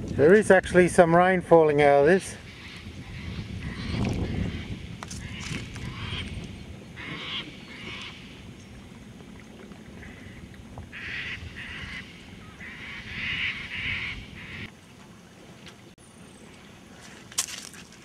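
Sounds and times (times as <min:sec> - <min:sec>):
harsh bird calls: 0:02.4 - 0:08.4.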